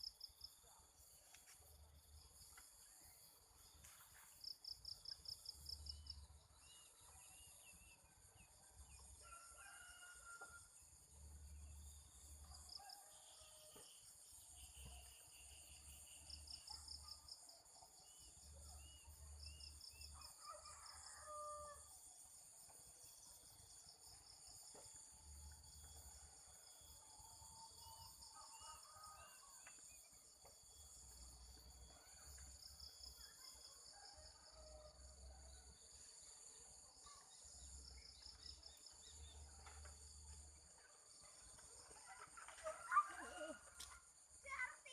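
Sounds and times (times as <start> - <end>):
crickets chirping: 0.0 - 44.9
rooster crowing: 9.2 - 10.7, 20.2 - 21.9.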